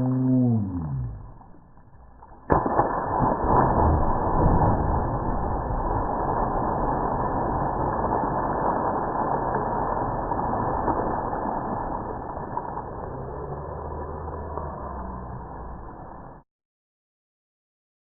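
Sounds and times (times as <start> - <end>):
motorboat engine running: 12.3 - 16.4.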